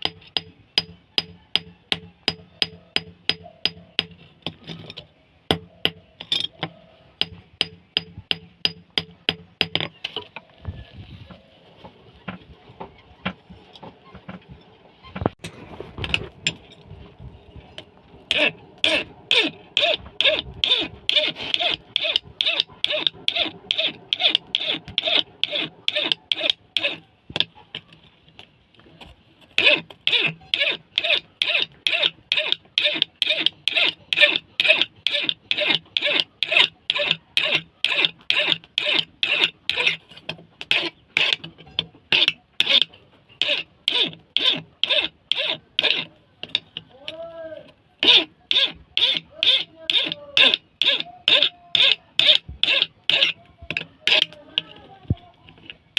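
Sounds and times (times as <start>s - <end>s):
chisel scraping on abrasive: 16.0s - 27.6s, 28.8s - 55.9s.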